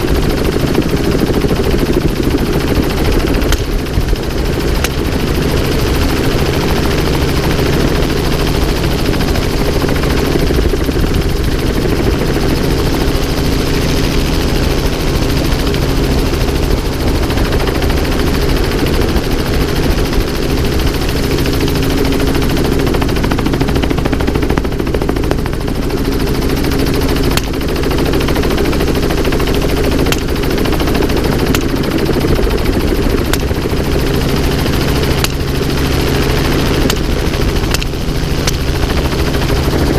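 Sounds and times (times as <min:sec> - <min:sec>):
helicopter rotor and engine: 0:00.0 - 0:39.9
sharp cracks: 0:03.4 - 0:04.1, 0:27.4 - 0:27.7, 0:30.0 - 0:30.5, 0:35.1 - 0:35.8, 0:36.8 - 0:38.9.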